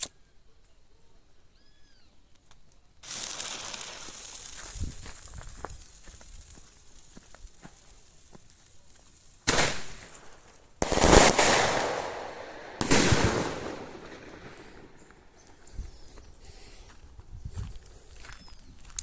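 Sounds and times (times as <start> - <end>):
firecracker bangs: 9.5 - 15.5.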